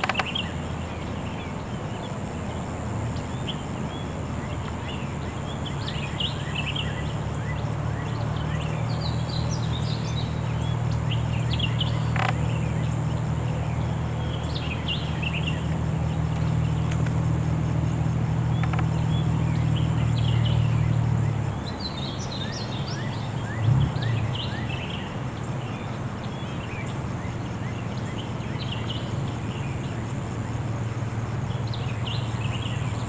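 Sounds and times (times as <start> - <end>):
sharp click: 0.0 - 0.4
birds chirping and calling: 0.0 - 2.5, 3.1 - 17.0
steady low hum: 0.0 - 33.0.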